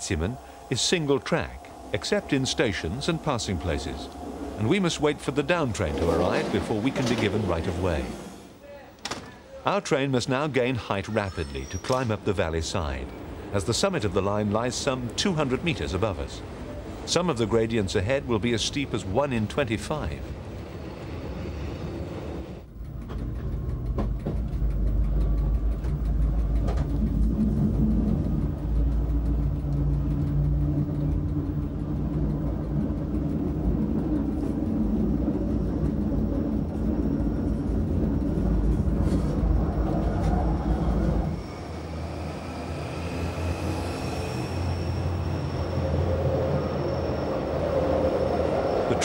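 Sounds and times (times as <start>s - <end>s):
faint high whine: 0.0s - 5.9s, 27.0s - 49.0s
train wheels rumbling on rails: 0.0s - 8.5s, 10.3s - 49.0s.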